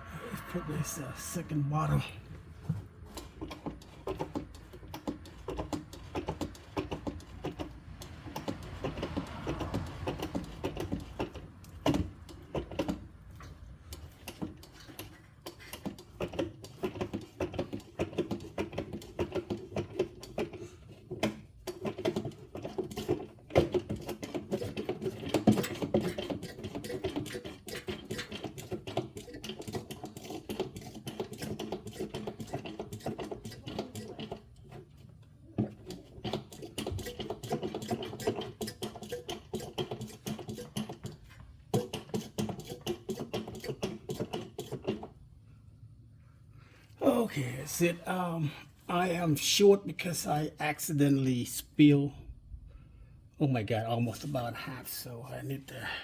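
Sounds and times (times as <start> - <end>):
hand pump clicking and rattling: 3.1 - 13.0, 13.9 - 34.8, 35.6 - 45.2.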